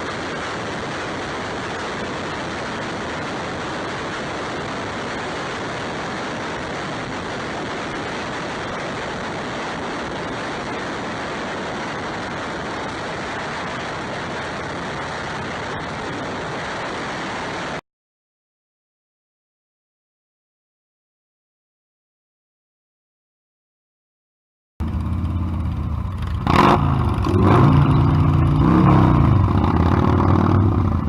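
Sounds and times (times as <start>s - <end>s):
wind and road noise: 0.0s - 17.8s, 24.8s - 31.0s
wind buffeting microphone: 0.0s - 17.8s.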